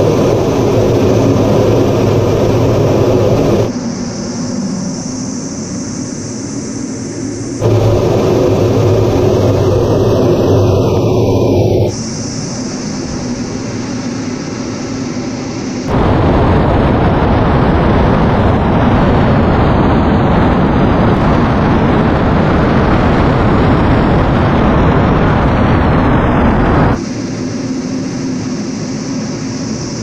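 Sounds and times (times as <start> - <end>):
explosion-like rumble: 0.0 - 3.7, 7.6 - 12.0, 15.9 - 27.0
military jet aircraft roar: 0.0 - 30.0.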